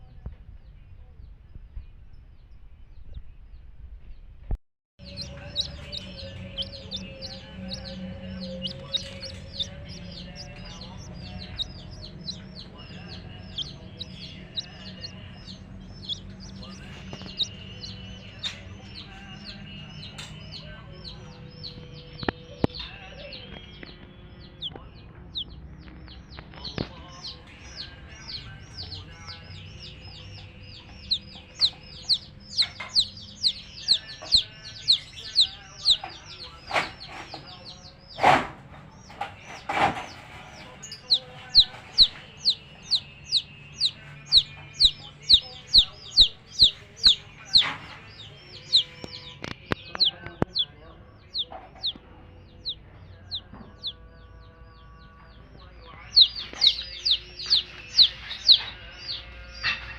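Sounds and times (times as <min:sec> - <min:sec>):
steady low hum: 0:00.0 - 0:36.7
baby chicks peeping: 0:00.0 - 0:59.9.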